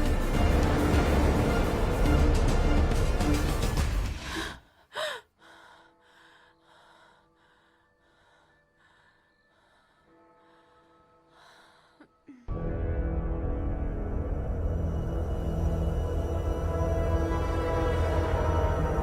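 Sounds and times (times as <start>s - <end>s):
loud film score: 0.0s - 4.7s, 12.5s - 19.0s
rapid breathing into a mask: 4.1s - 10.8s.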